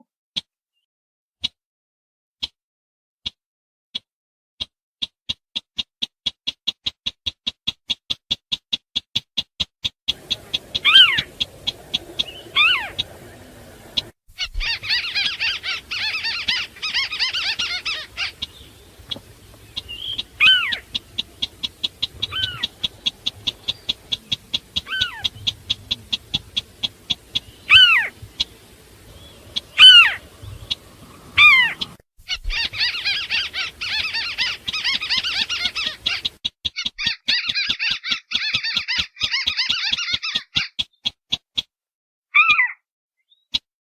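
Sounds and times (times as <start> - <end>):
rapid high ticking calls: 5.0 - 41.7
dense high chattering: 10.1 - 32.0.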